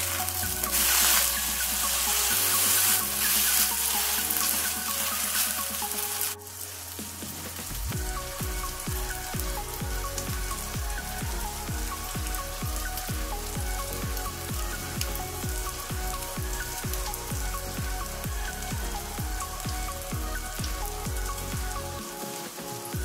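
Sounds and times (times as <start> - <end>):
background music with beat: 0.0 - 23.0.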